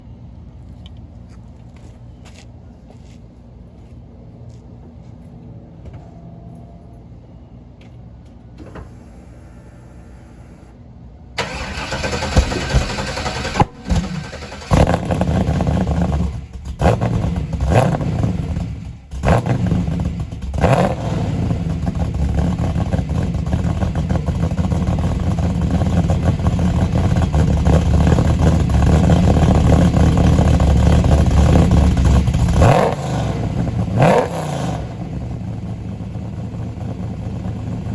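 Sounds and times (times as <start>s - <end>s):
starter motor cranking: 11.4s - 15.0s
car engine revving and idling: 11.4s - 37.9s.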